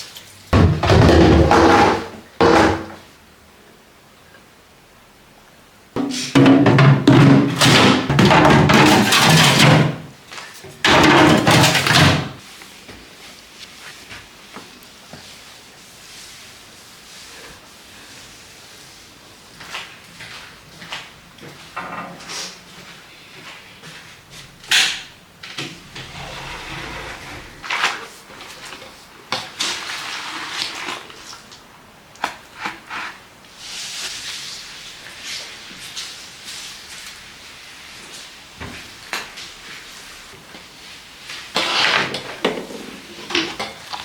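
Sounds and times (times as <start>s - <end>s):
household objects knocking and scraping: 0.6s - 3.0s, 6.0s - 10.1s, 10.7s - 12.4s.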